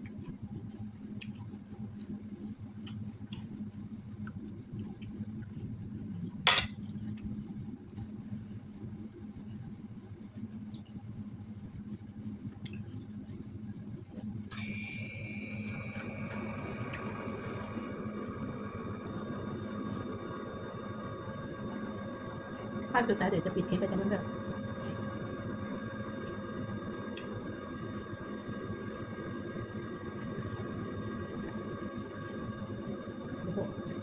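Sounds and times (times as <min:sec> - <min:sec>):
low background hum: 0:00.0 - 0:34.0
tableware clink: 0:06.5 - 0:06.7.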